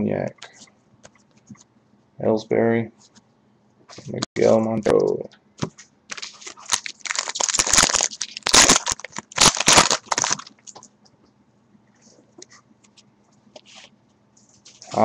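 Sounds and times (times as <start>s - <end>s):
cards being handled: 5.6s - 10.8s
wrapper crinkling and tearing: 6.1s - 10.8s.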